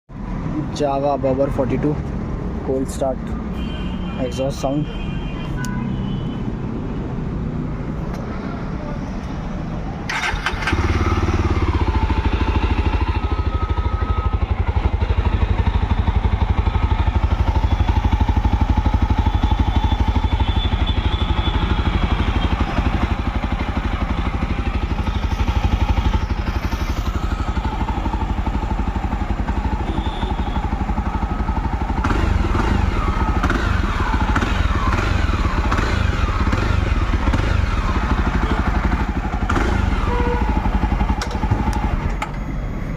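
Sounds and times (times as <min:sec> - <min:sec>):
motorcycle engine idling: 0:10.1 - 0:42.9.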